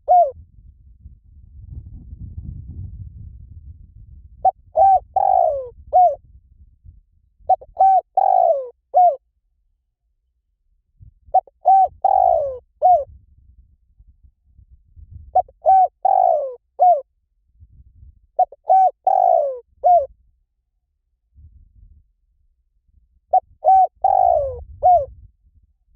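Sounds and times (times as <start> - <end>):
dove cooing: 0.0 - 0.4, 4.4 - 6.2, 7.5 - 9.2, 11.4 - 13.1, 15.4 - 17.0, 18.4 - 20.1, 23.3 - 25.1.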